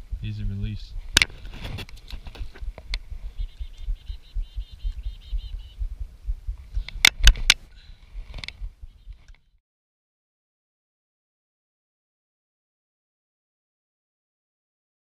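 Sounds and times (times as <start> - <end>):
low rumble: 0.0 - 9.4
sharp clicks or knocks: 1.1 - 3.1, 6.8 - 7.6
bird chirping rapidly: 2.6 - 7.0, 8.6 - 9.5.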